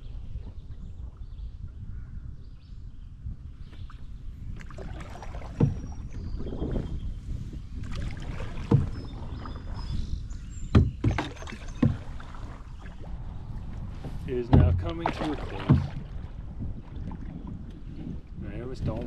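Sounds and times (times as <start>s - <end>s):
paddle strokes splashing: 3.7s - 18.3s
sharp knocks: 10.7s - 12.1s, 14.5s - 15.0s.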